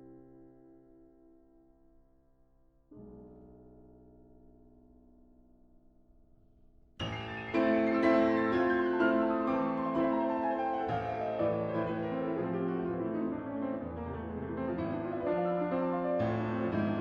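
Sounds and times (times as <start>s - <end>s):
piano music: 7.0s - 17.0s.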